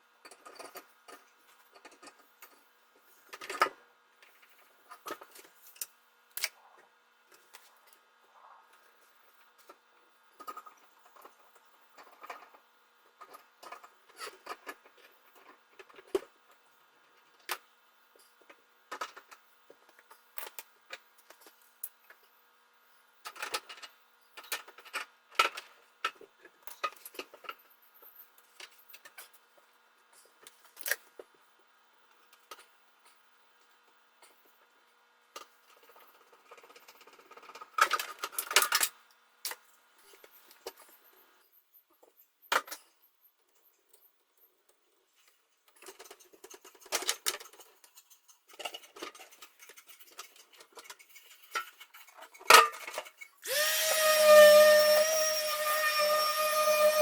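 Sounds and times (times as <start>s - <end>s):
objects clicking and clattering: 45.2s - 53.5s.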